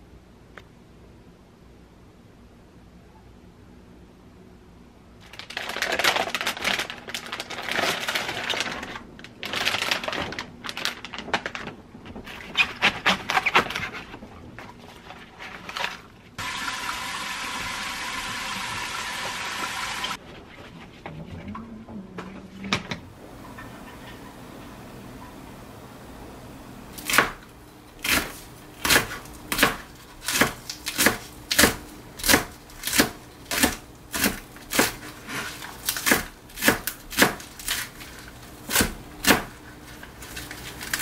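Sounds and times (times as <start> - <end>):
tap water running and splashing: 16.4 - 20.2.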